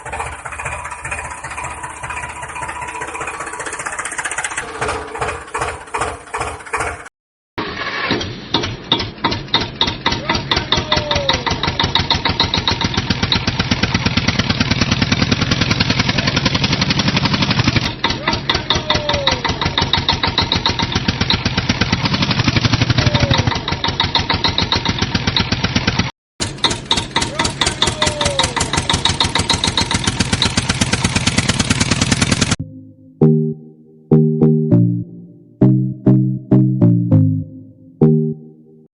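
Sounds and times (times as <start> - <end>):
engine chugging: 0.0 - 7.1, 8.6 - 32.6.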